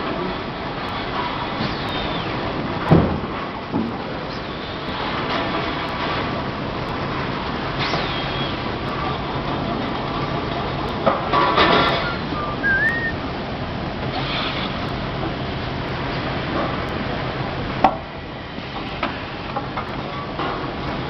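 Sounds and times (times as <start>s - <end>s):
factory machinery hum: 0.0s - 21.0s
short high squeals: 11.8s - 13.2s.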